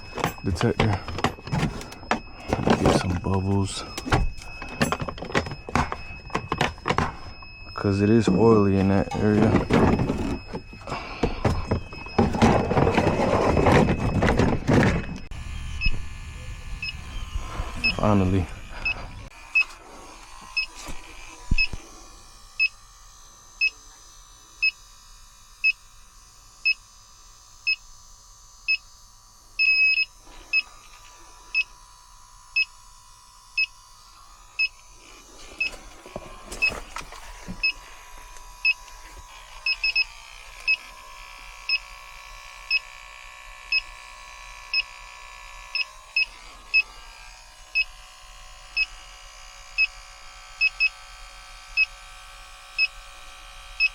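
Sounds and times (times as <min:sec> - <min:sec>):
leak detector beeping: 0:00.0 - 0:19.8, 0:20.4 - 0:22.8, 0:23.6 - 0:23.8, 0:24.6 - 0:24.9, 0:25.6 - 0:25.9, 0:26.6 - 0:26.9, 0:27.6 - 0:27.9, 0:28.6 - 0:28.9, 0:29.6 - 0:31.8, 0:32.5 - 0:32.8, 0:33.5 - 0:41.0, 0:41.6 - 0:42.0, 0:42.6 - 0:43.0, 0:43.7 - 0:44.0, 0:44.6 - 0:45.1, 0:45.7 - 0:47.0, 0:47.7 - 0:47.9, 0:48.7 - 0:49.1, 0:49.8 - 0:51.1, 0:51.7 - 0:52.0, 0:52.7 - 0:53.0.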